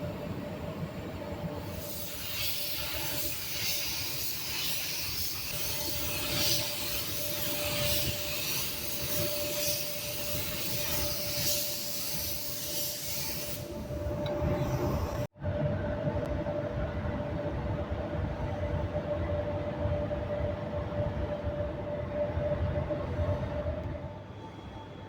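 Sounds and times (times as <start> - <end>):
compressed air hissing: 1.6 - 15.3.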